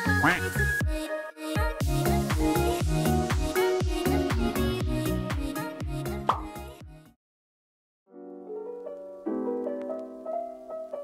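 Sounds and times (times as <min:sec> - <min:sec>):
dance music with steady beat: 0:01.6 - 0:06.6.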